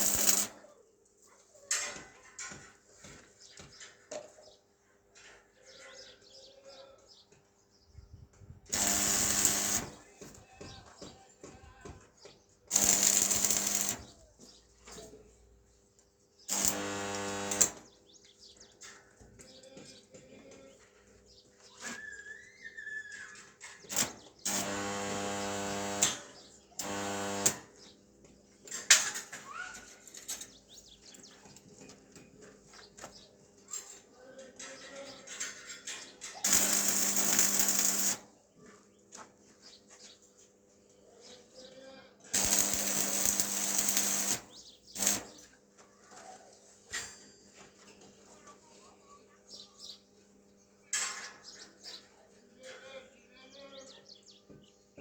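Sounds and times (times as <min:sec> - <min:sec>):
power tool motor bursts: 0:00.0 - 0:00.6, 0:08.7 - 0:10.0, 0:12.7 - 0:14.1, 0:16.5 - 0:17.8, 0:23.9 - 0:27.8, 0:36.4 - 0:38.2, 0:42.4 - 0:45.3.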